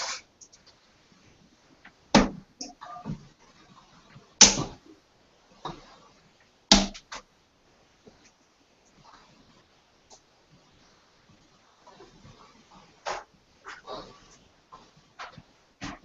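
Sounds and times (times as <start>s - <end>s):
darts thudding into dartboard: 4.4s - 4.8s, 6.7s - 7.1s.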